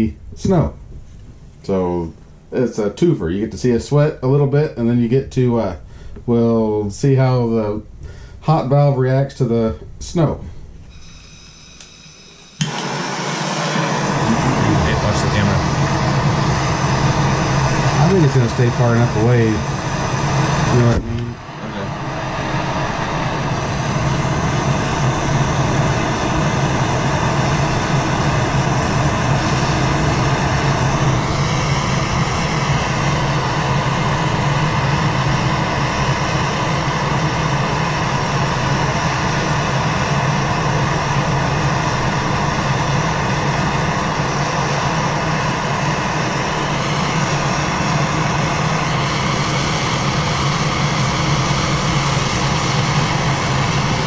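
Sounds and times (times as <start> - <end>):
low hum: 9.5 - 54.0
gas torch hissing: 10.8 - 54.0.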